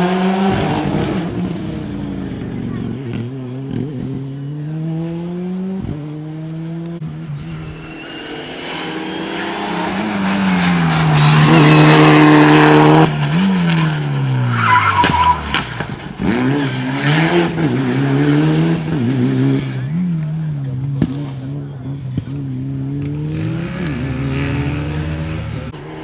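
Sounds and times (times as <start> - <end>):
rally car engine at full throttle: 0.0 - 26.0
second car engine: 0.0 - 26.0
tyre squeal under braking: 7.2 - 16.0.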